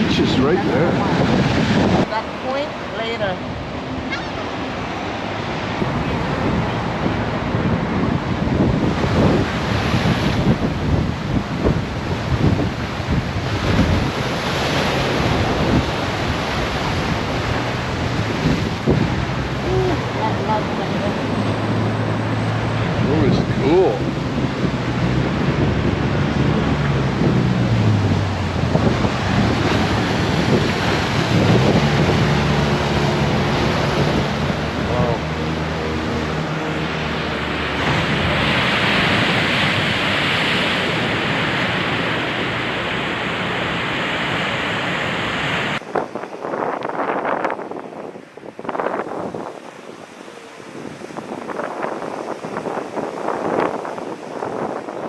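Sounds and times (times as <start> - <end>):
sea surf: 0.0 - 55.0
wind buffeting microphone: 0.0 - 55.0
low engine hum: 10.6 - 46.3.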